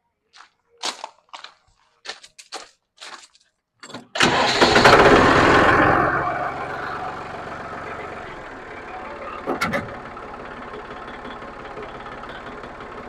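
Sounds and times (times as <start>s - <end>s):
diesel engine starting and running: 3.8s - 13.0s.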